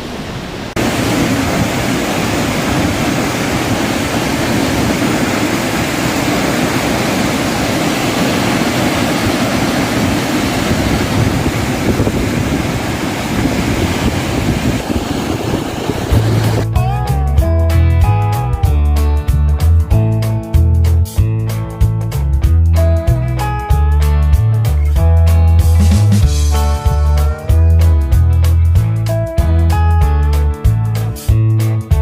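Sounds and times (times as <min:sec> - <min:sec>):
waterfall roaring: 0:00.0 - 0:16.7.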